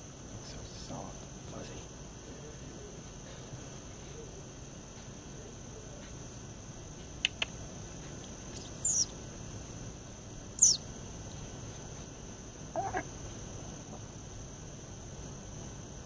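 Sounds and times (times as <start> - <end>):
insect drone: 0.0 - 16.0
sharp clicks: 7.1 - 7.6
high bird calls sweeping down: 8.5 - 9.1, 10.6 - 10.8.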